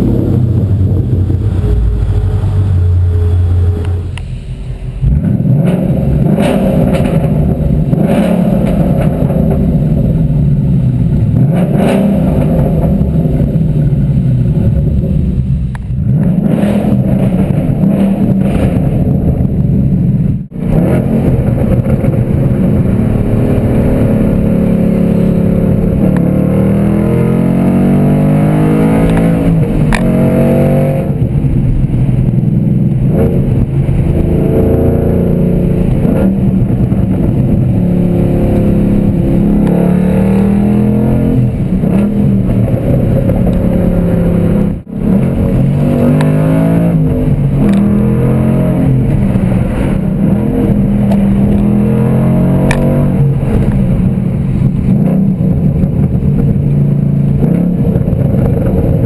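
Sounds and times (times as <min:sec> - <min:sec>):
loud car engine revving: 0:00.0 - 0:59.0.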